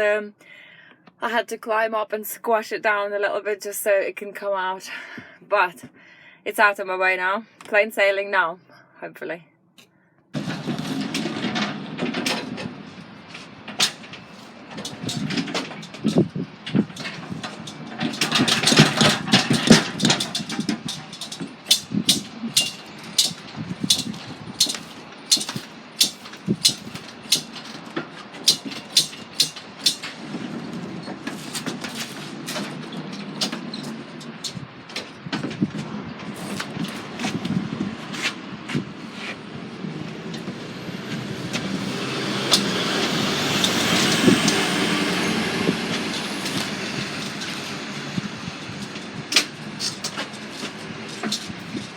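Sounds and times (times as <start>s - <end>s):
sharp knocks and rattles: 10.4s - 37.6s, 40.4s - 51.9s
lorry engine rumble: 10.4s - 51.9s.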